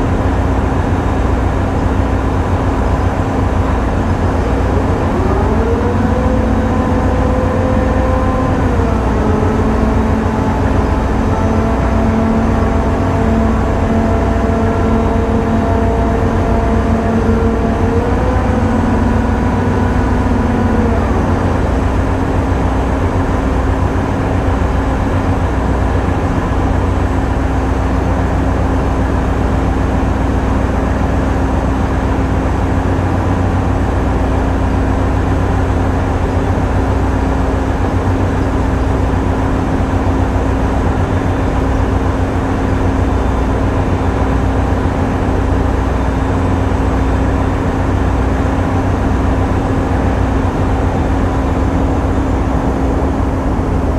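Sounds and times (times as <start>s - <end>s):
tugboat diesel engines droning: 0.0s - 53.9s
winch whining: 2.0s - 24.6s.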